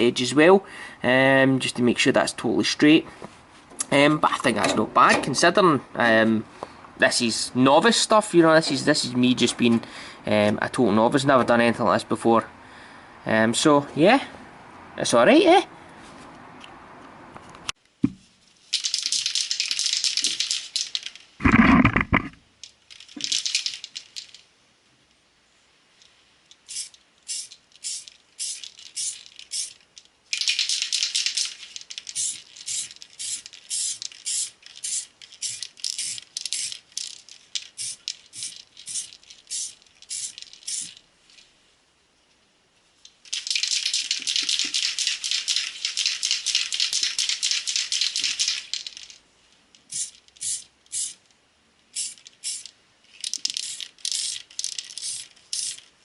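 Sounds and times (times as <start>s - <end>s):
rhythmic rattling: 43.3s - 49.1s.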